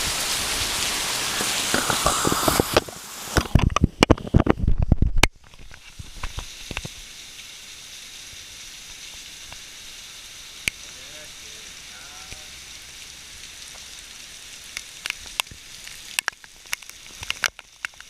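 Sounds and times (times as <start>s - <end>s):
heavy raindrops tapping: 0.0s - 7.0s, 10.6s - 12.8s, 14.6s - 18.0s
faint steady hiss: 0.0s - 18.0s
scattered drips: 5.2s - 18.0s.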